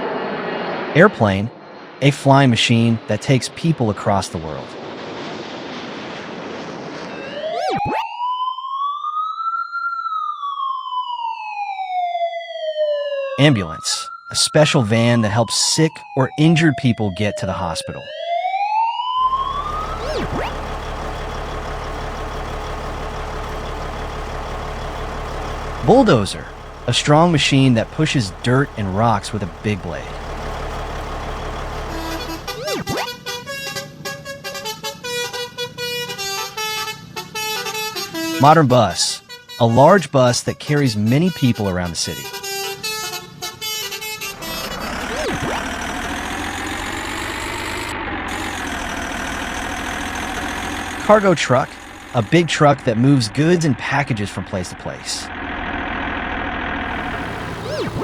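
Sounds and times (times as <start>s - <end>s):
ambulance siren wailing: 7.2s - 33.1s, 44.4s - 58.0s
vehicle engine drone: 19.2s - 33.1s, 44.3s - 58.0s.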